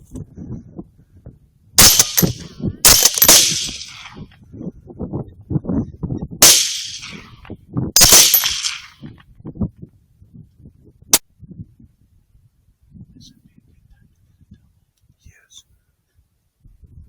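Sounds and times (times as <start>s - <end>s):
rifle shots: 1.8s - 4.2s, 6.4s - 7.3s, 8.0s - 8.9s.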